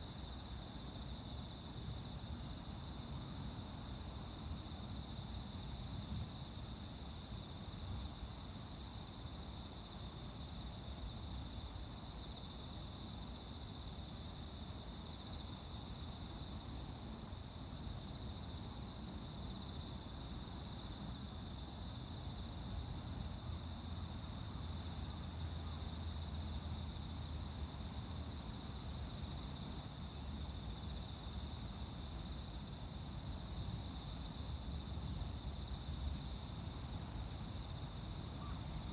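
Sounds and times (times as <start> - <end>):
insects trilling: 15.2 - 16.8, 23.4 - 38.9
insect repeating short call: 38.3 - 38.9.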